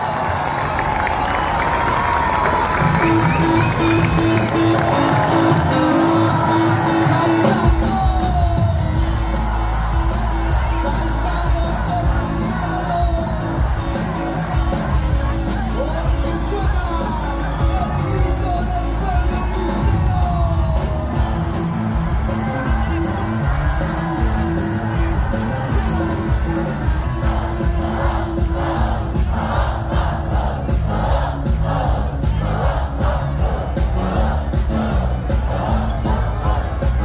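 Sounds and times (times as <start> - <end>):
crowd yells and whoops: 0.0 - 37.0
live band through pa: 0.0 - 37.0
heavy bass: 2.7 - 37.0.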